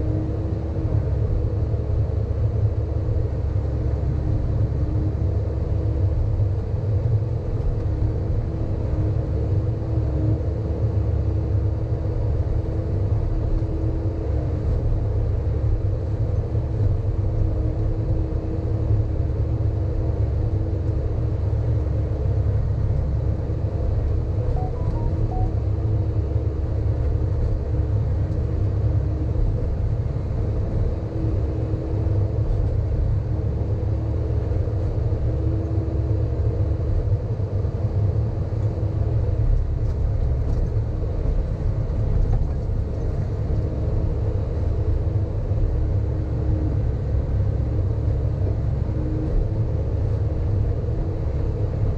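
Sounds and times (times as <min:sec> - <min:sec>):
excavator diesel engine running: 0:24.4 - 0:26.0.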